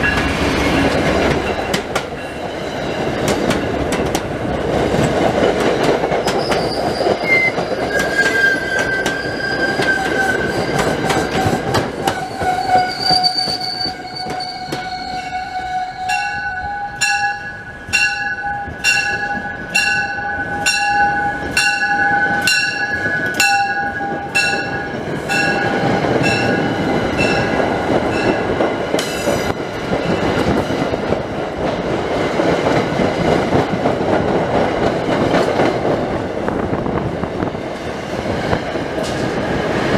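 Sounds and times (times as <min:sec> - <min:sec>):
train rumbling past: 0:00.0 - 0:39.9
high squealing wheels: 0:06.1 - 0:28.4
bell ringing: 0:16.1 - 0:28.4.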